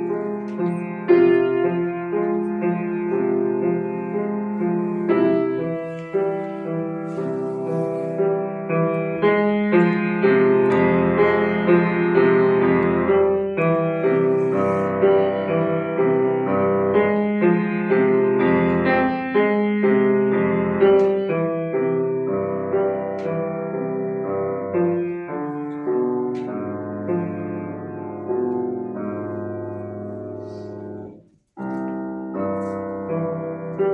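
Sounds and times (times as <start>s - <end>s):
slow piano chords: 0.0s - 33.9s.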